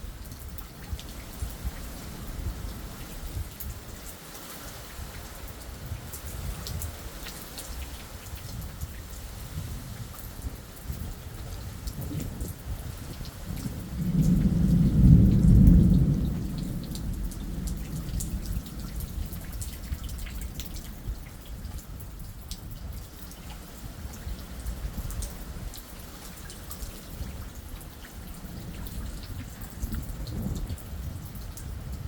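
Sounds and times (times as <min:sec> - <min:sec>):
steady rain: 0:00.0 - 0:32.0
thunder rumbling: 0:13.6 - 0:21.2, 0:28.4 - 0:32.0.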